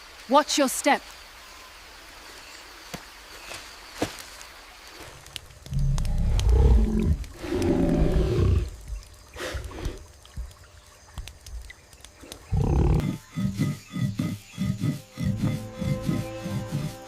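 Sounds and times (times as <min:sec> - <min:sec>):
leopard growling: 0:05.7 - 0:08.8, 0:12.5 - 0:17.0.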